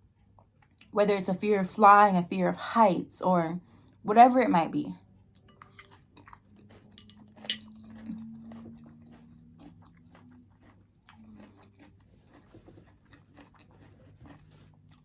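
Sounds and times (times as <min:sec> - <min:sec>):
chewing and crunching food: 0:00.0 - 0:01.0, 0:05.0 - 0:15.0.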